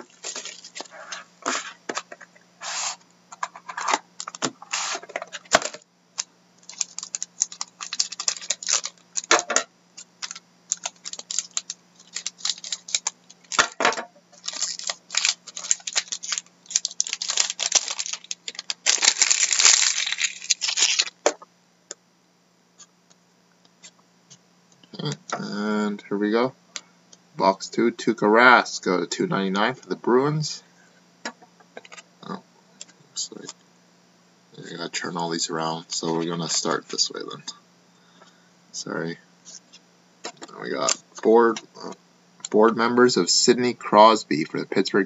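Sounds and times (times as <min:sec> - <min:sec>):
plastic wrapping crinkling and tearing: 0:00.0 - 0:01.1, 0:03.8 - 0:09.4, 0:10.0 - 0:21.2.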